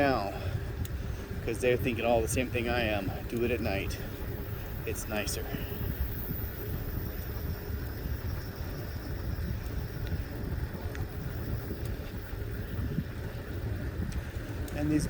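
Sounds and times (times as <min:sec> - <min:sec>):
wind rumble on microphone: 0:00.0 - 0:15.0
faint clicks: 0:00.8 - 0:01.0, 0:09.5 - 0:12.8, 0:13.4 - 0:14.9.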